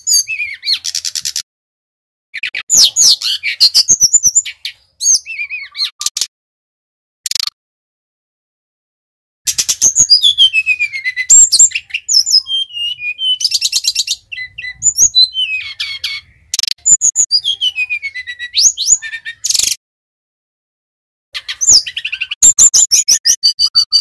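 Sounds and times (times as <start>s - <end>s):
bird singing trills and whistles: 0.0s - 1.4s, 2.4s - 6.3s, 9.5s - 19.8s, 21.4s - 24.0s.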